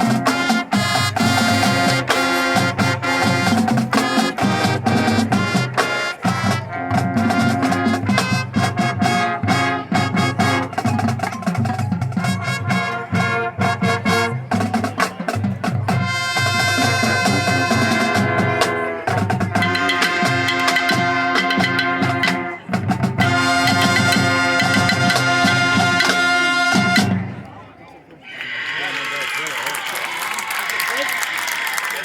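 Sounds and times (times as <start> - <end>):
brass holding notes: 0.0 - 11.1, 12.1 - 15.0, 15.9 - 27.4
drums and percussion beat: 0.0 - 27.4.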